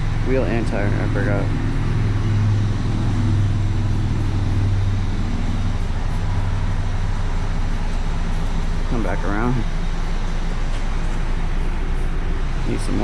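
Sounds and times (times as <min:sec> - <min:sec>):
constant rushing noise: 0:00.0 - 0:13.0
low mechanical hum: 0:00.0 - 0:13.0.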